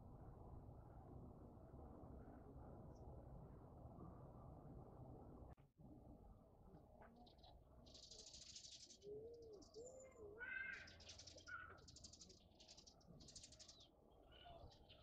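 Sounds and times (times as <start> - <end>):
faint harsh bird calls: 9.8 - 15.0.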